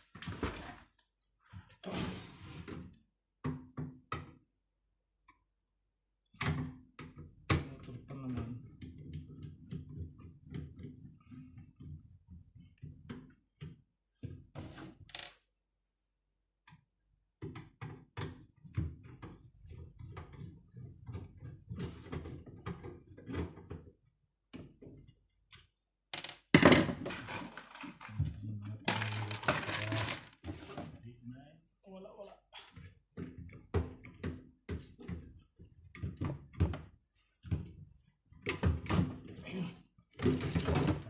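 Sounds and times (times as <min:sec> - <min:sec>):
tools and metal parts clattering: 0:26.6 - 0:28.2, 0:28.9 - 0:30.4
scraping and rattling: 0:28.9 - 0:30.9.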